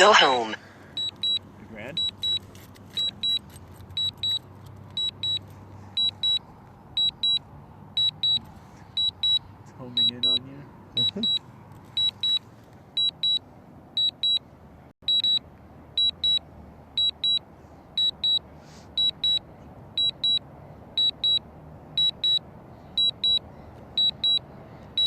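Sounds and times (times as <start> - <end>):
high double beep: 10.0 - 10.4, 11.0 - 11.4.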